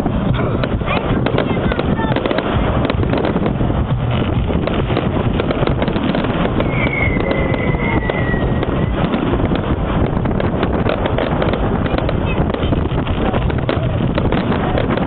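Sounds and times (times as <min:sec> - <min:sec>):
fireworks crackling and popping: 0:00.0 - 0:15.0
wind rumble on microphone: 0:00.0 - 0:15.0
high falling whistle: 0:06.6 - 0:09.0.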